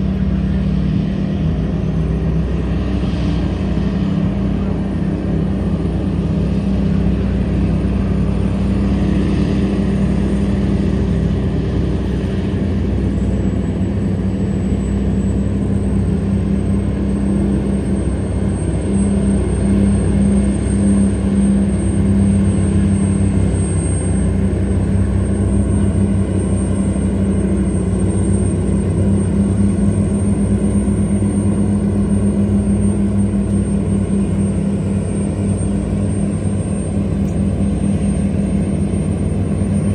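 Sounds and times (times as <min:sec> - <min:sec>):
tugboat engine droning: 0:00.0 - 0:39.9.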